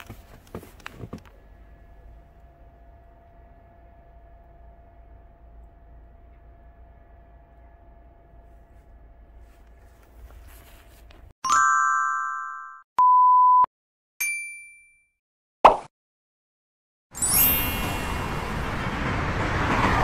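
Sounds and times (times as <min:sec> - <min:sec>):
faint hum: 0:00.0 - 0:11.3
traffic noise: 0:00.0 - 0:11.3, 0:17.4 - 0:20.0
ringing chime: 0:11.5 - 0:12.8, 0:17.2 - 0:18.6
electronic beep: 0:13.0 - 0:13.7
ding: 0:14.2 - 0:15.2, 0:17.2 - 0:18.2.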